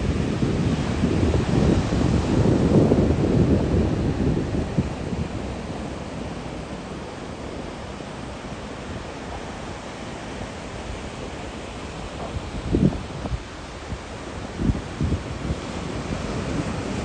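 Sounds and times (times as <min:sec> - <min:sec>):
ocean surf hissing: 0:00.0 - 0:17.0
wind: 0:00.0 - 0:17.0.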